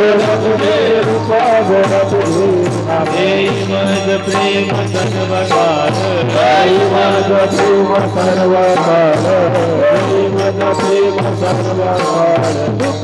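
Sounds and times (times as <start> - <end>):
steady percussion beat: 0.0 - 13.0
voices singing long notes: 0.0 - 13.0.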